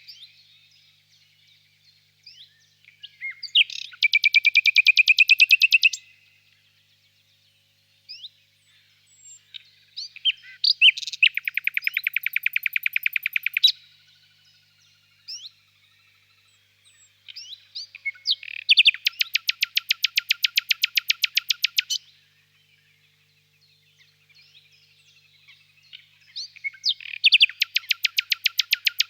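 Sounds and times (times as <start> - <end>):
faint birds chirping: 0.0 - 29.0
nightingale singing: 0.0 - 29.0.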